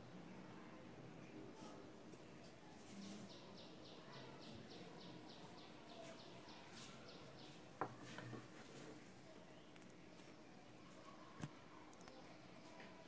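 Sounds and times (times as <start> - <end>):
faint high bird chirps: 3.0 - 8.3.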